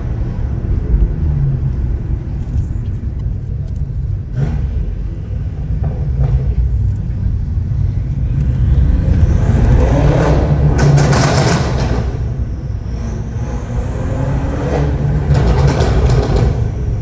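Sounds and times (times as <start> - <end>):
car engine deep rumble: 0.0 - 17.0.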